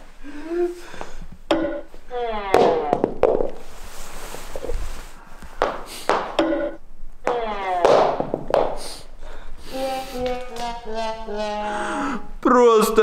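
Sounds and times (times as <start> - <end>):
noisy breath: 0.0 - 1.4, 3.8 - 6.3, 8.8 - 10.2, 11.6 - 12.4.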